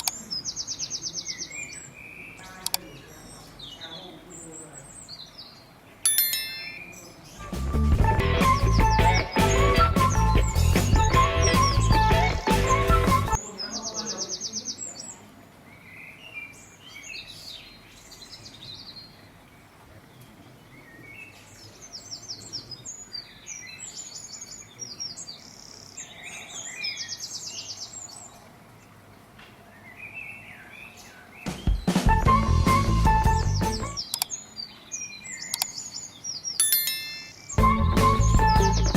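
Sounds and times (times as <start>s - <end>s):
birds singing trills: 0.0s - 7.4s, 8.5s - 28.5s, 29.7s - 32.0s, 32.8s - 38.9s
bird chirps and whistles: 37.4s - 38.9s.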